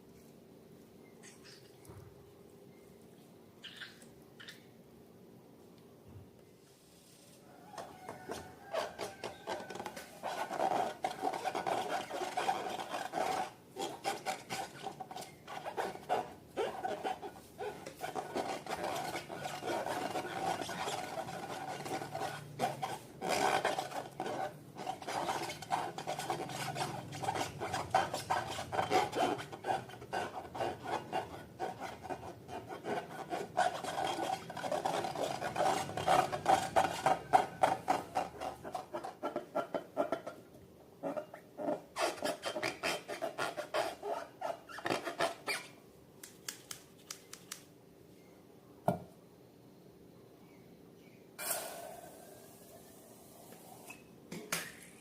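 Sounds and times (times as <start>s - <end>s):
slime rubbing and scraping: 8.7s - 40.3s, 41.1s - 45.8s.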